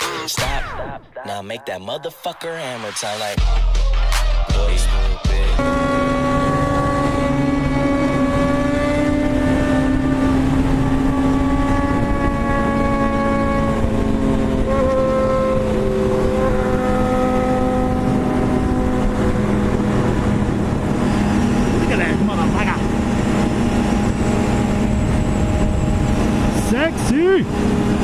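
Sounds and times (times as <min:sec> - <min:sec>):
motorcycle engine running: 0:05.6 - 0:26.8
wind and road noise: 0:05.6 - 0:28.0.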